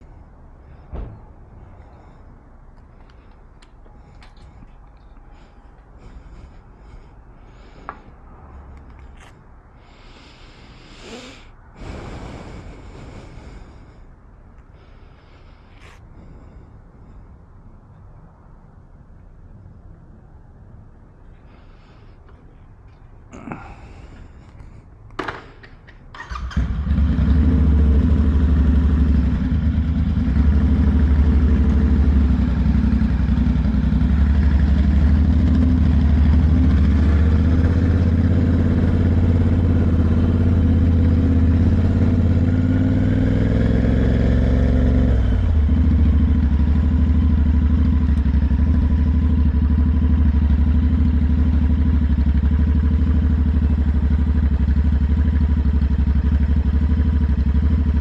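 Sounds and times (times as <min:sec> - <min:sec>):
motorcycle engine idling: 0:25.2 - 0:58.0.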